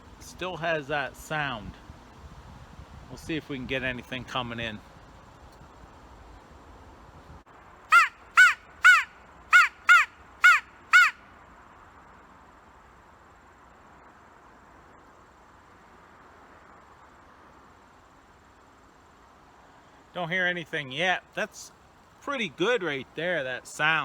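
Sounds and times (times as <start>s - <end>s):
crow call caws: 7.9s - 11.2s.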